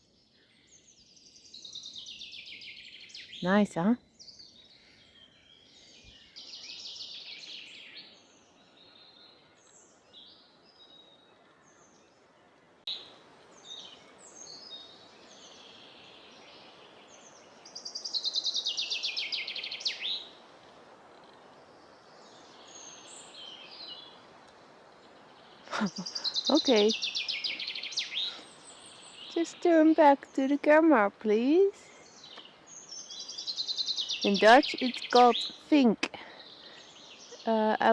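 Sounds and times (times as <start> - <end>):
chaffinch song: 0.0 - 20.5, 21.3 - 37.9
faint steady hiss: 0.0 - 37.9
songbirds singing: 0.0 - 37.9.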